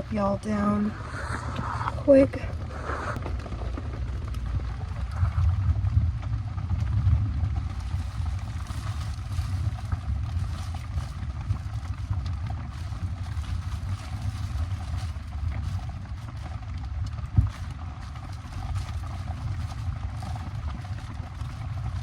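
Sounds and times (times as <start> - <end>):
rain on a tarp: 3.2 - 22.0.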